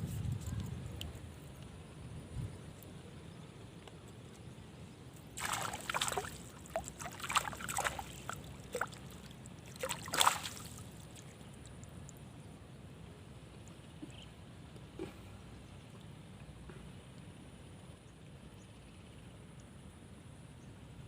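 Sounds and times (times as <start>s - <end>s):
water splashing and sloshing: 5.1s - 12.2s.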